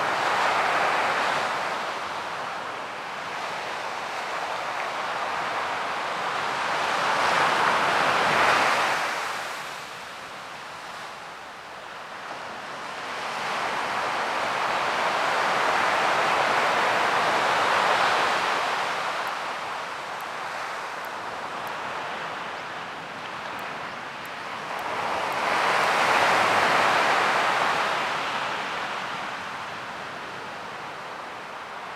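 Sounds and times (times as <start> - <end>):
ocean waves breaking: 12.4 - 31.9.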